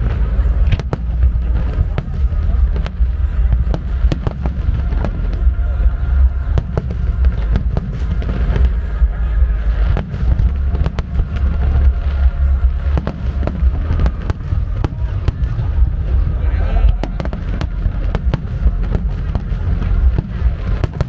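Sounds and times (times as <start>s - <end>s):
continuous low rumble: 0.0s - 21.0s
firework bangs: 0.0s - 21.0s.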